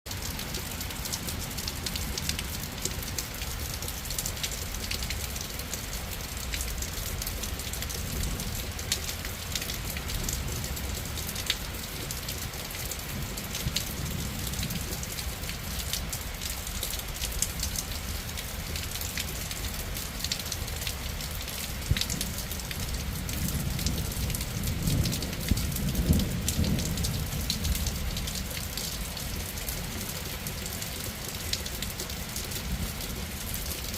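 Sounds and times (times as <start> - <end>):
heavy rain falling: 0.1 - 33.9
thunder rumbling: 23.2 - 28.3.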